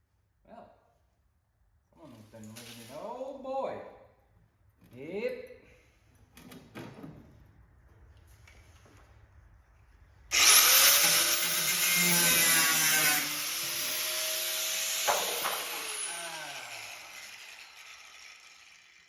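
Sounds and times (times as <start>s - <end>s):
power tool whining: 10.3s - 19.0s.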